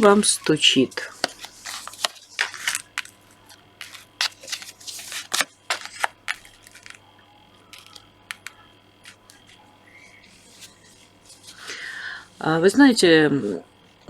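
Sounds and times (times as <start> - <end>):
cards being shuffled: 0.0 - 7.0, 7.7 - 9.6, 10.3 - 11.8.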